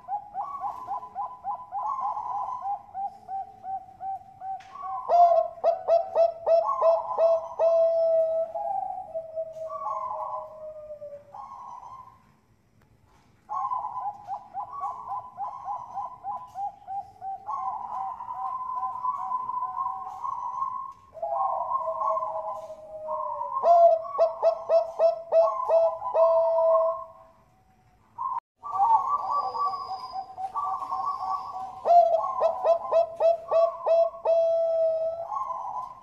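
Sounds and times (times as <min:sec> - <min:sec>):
doves cooing: 0:00.0 - 0:12.4, 0:13.1 - 0:36.0.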